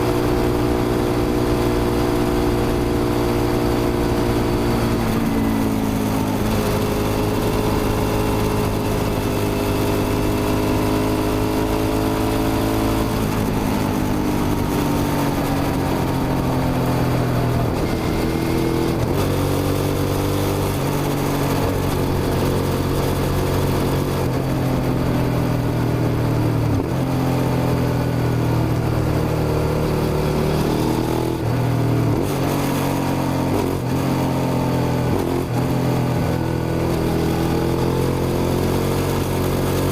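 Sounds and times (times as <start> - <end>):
motorcycle engine running under load: 0.0 - 39.9.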